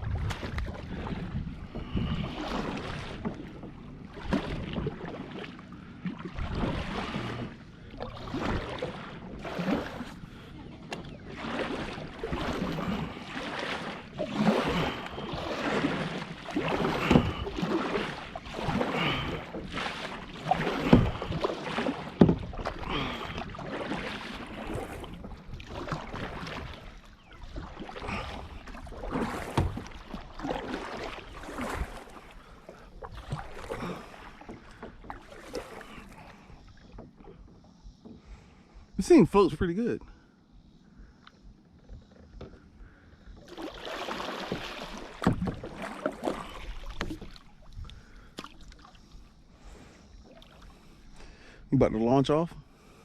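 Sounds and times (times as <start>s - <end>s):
paddle strokes splashing water: 0.0s - 40.0s, 41.0s - 53.0s.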